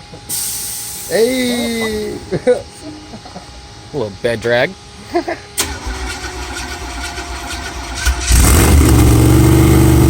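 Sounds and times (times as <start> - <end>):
car engine cranking and starting: 5.6 - 10.0.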